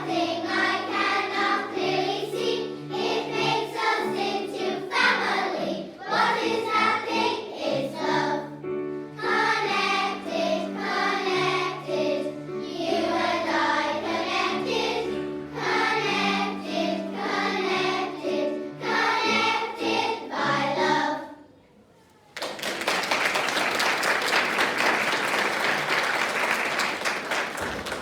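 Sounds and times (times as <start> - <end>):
girls choir singing: 0.0 - 21.5.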